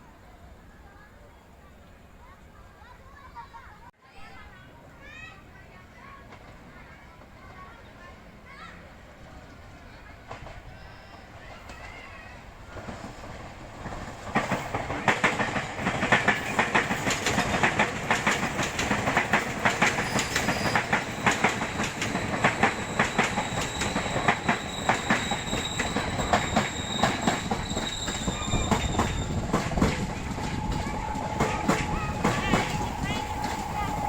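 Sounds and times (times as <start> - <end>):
train wheels clicking over joints: 12.7 - 34.0
high wheel squeal: 20.0 - 34.0.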